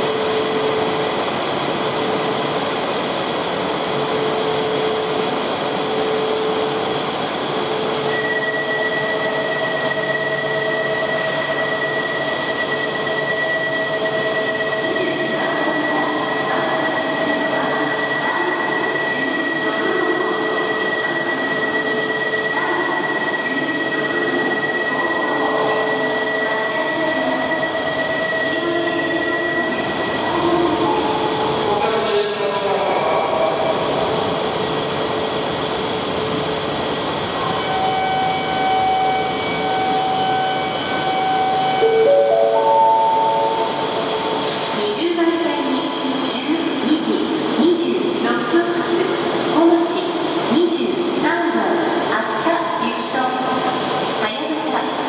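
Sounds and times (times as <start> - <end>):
train electrical whine and hum: 0.0 - 55.0
steady high tones: 37.7 - 44.8
platform noise: 41.6 - 44.6.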